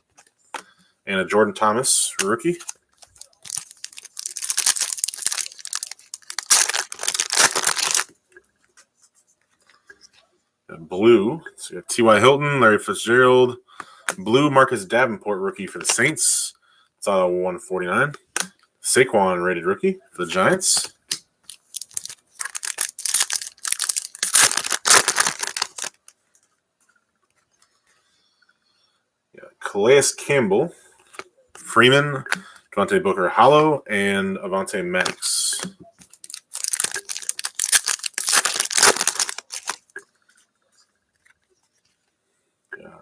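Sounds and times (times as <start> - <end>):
foil wrapper tearing and crinkling: 2.5 - 8.1, 21.5 - 26.1, 36.1 - 39.9.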